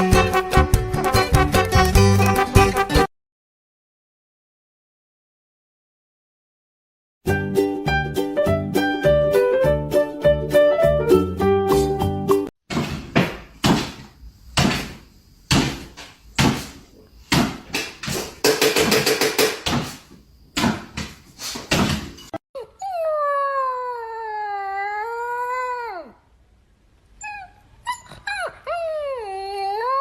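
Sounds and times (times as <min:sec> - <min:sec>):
dog whining: 0:22.6 - 0:26.2, 0:27.2 - 0:30.0.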